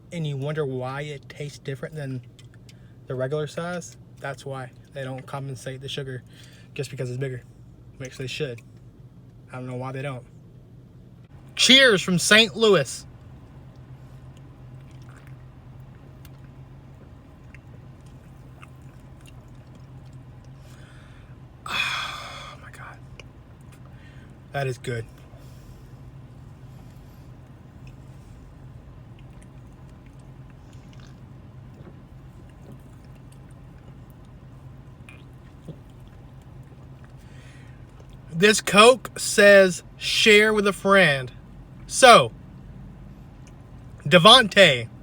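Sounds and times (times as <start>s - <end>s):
steady low hum: 0.0s - 45.0s
car cabin hum: 11.4s - 13.8s, 43.7s - 45.0s
man swallowing: 21.7s - 22.6s.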